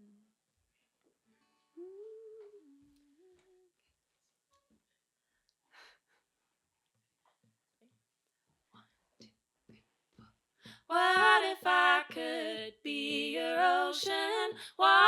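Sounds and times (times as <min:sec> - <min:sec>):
woman humming: 0:01.8 - 0:03.7.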